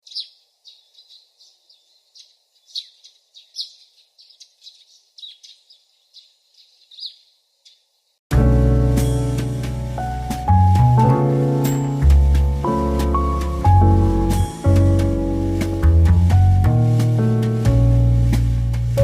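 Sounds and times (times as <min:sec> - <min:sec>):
small birds chirping: 0:00.0 - 0:08.2
loud music with drums: 0:08.3 - 0:19.0.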